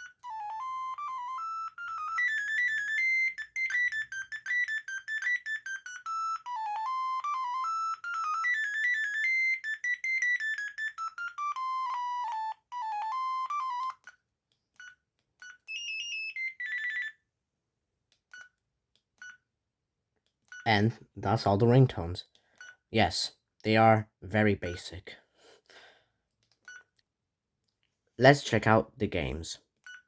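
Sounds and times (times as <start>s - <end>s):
electronic ringtone melody: 0.0s - 14.2s, 14.8s - 17.2s.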